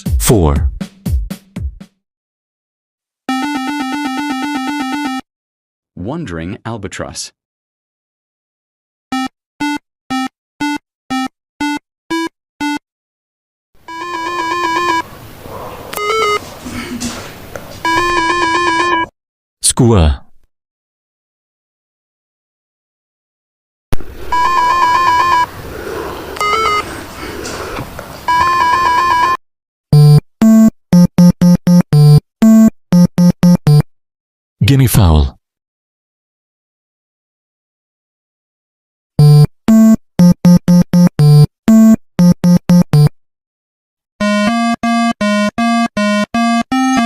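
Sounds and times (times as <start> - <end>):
fast warbling ringtone trill: 13.9 - 15.1, 16.0 - 16.4, 17.9 - 19.1, 24.0 - 25.5
steady beeping tones: 13.9 - 15.1, 16.0 - 16.5, 17.8 - 19.1, 24.0 - 25.5, 26.4 - 26.9
bird harsh calls: 14.8 - 17.6, 24.0 - 28.4
short electronic beeps: 24.2 - 25.5.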